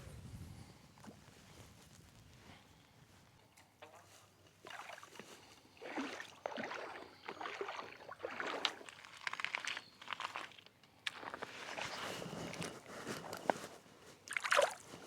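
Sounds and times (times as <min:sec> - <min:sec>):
water sloshing and splashing: 0:03.8 - 0:13.4, 0:14.2 - 0:15.0.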